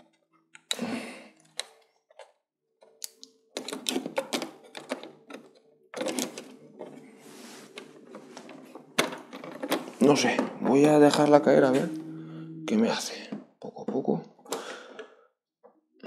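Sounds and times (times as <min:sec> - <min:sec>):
plastic parts clicking and knocking: 0:01.4 - 0:07.0, 0:08.4 - 0:11.3.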